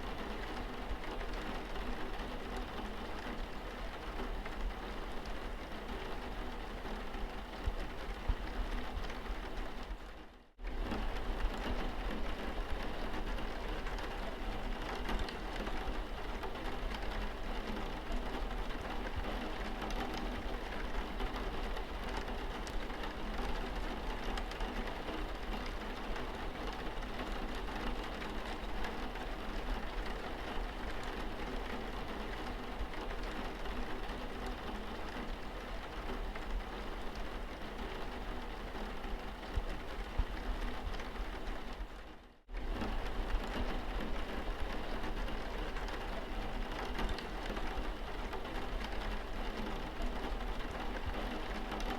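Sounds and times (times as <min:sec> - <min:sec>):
rain on car windscreen: 0:00.1 - 0:51.9.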